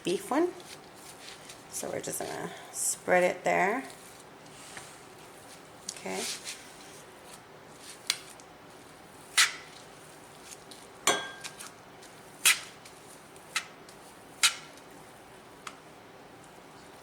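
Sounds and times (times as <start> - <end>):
utensil clinking against dishes: 11.1 - 11.6.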